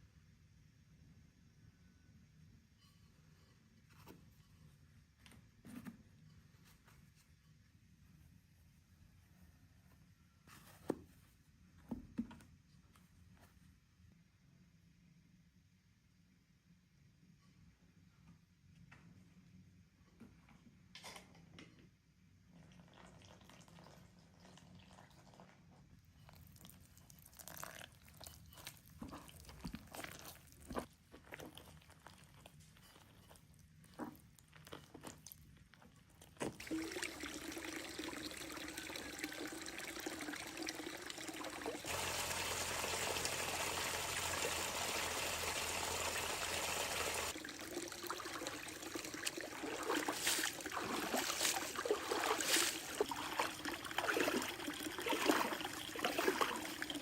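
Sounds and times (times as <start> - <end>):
running water splashing: 36.5 - 57.0.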